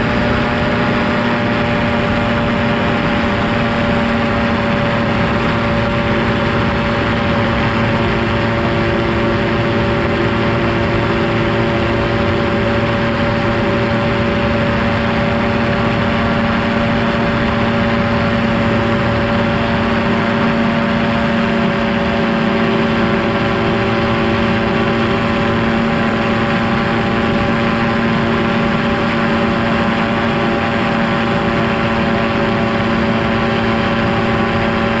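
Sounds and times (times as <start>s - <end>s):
light aircraft engine droning: 0.0s - 35.0s.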